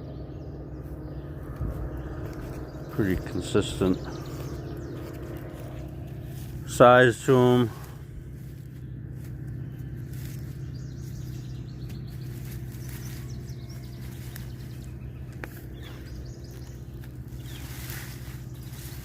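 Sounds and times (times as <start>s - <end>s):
low hum: 0.0s - 19.0s
faint bird chirps: 7.6s - 19.0s.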